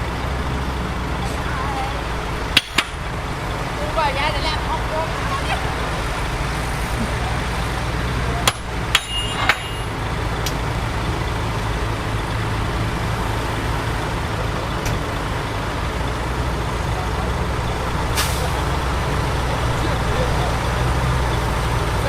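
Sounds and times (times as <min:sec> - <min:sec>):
diesel earthmoving machinery running: 0:00.0 - 0:22.0
sharp metallic clanks: 0:02.5 - 0:03.1, 0:08.4 - 0:10.6.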